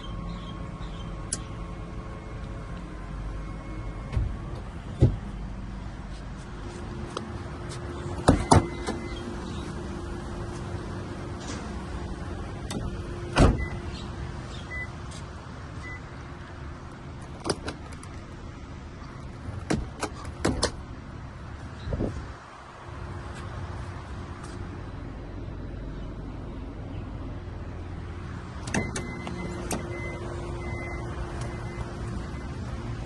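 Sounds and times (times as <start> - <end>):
car doors clunking shut: 4.0 - 5.3, 8.1 - 9.3, 12.6 - 14.0, 17.2 - 18.2, 19.4 - 20.9, 28.6 - 32.2.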